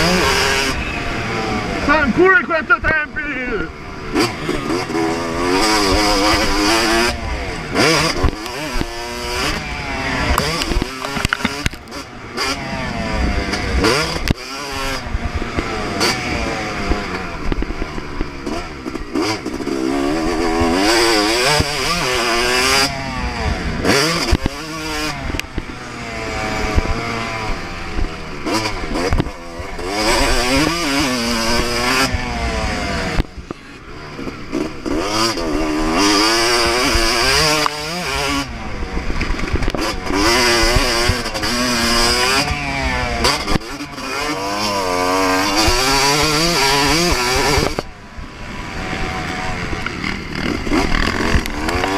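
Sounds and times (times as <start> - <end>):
motocross bike engine revving: 0.0 - 51.9
knocks and clatter: 10.3 - 11.9.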